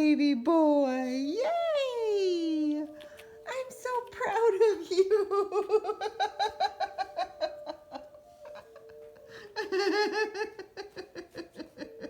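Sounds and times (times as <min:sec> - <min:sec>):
soft background music: 0:00.0 - 0:12.0
rapid laughter: 0:05.6 - 0:12.0.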